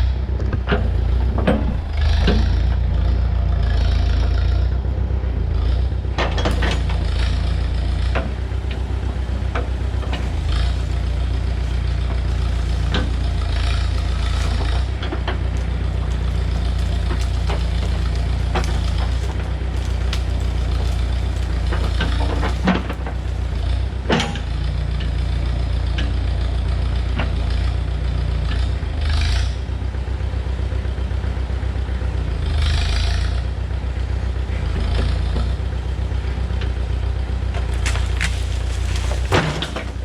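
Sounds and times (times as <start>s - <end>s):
backhoe engine running: 0.0s - 40.0s
metallic clanks: 6.2s - 24.7s.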